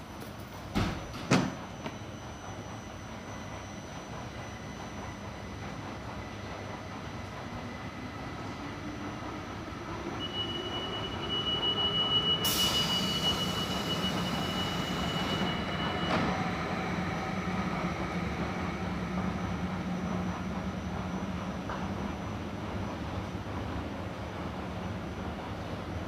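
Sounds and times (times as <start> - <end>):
train hum: 0.0 - 26.0
steady high tone: 10.0 - 21.6.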